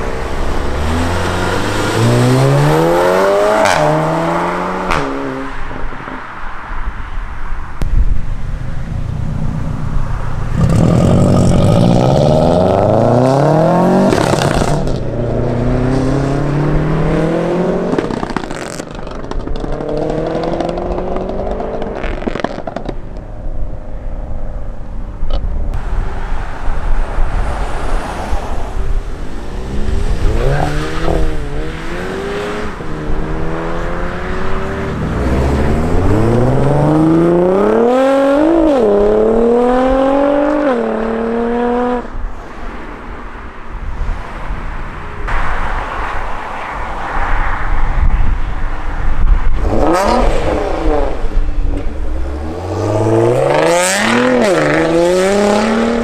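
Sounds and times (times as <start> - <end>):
car engines revving: 0.0 - 56.0
sharp cracks: 17.9 - 23.3.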